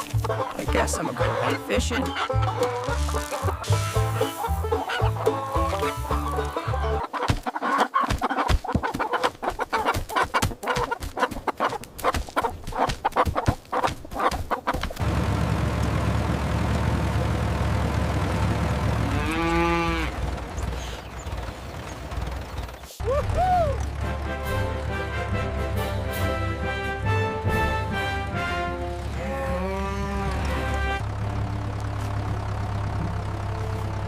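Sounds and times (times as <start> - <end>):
chickens clucking: 0.0 - 15.0
cow mooing: 19.1 - 20.2, 29.0 - 31.0.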